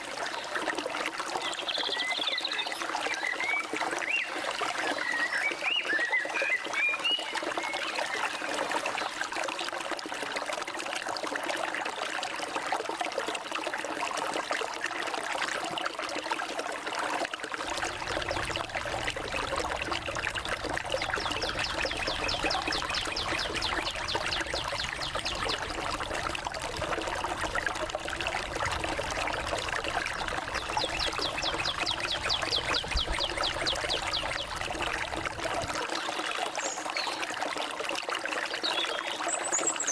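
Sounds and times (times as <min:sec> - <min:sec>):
stream trickling: 0:00.0 - 0:39.9
birds chirping: 0:17.8 - 0:26.4, 0:29.8 - 0:35.4.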